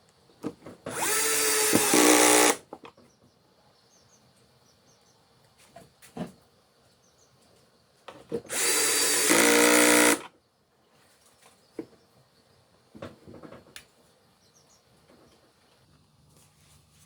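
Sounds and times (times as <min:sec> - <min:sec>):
power tool running: 0:00.9 - 0:02.6, 0:08.5 - 0:10.3.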